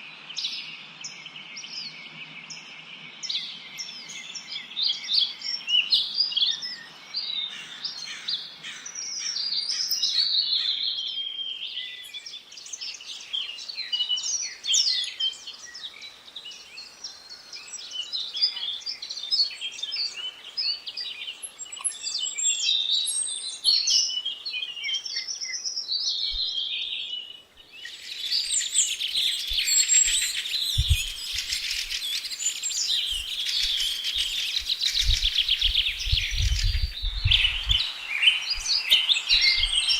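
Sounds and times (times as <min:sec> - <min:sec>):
songbirds chirping and singing: 0:00.0 - 0:39.9
steady high hiss: 0:27.8 - 0:39.9
short low thumps: 0:34.6 - 0:37.8.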